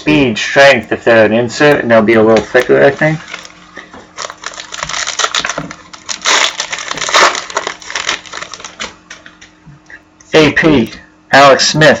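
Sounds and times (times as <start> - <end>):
foil wrapper tearing and crinkling: 3.0 - 9.1.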